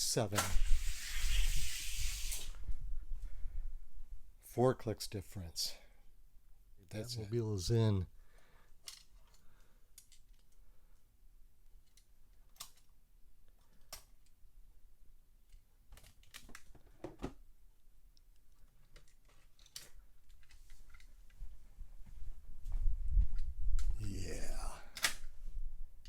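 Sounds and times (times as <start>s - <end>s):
light clicks of toy cars: 8.8s - 10.6s, 24.9s - 25.3s.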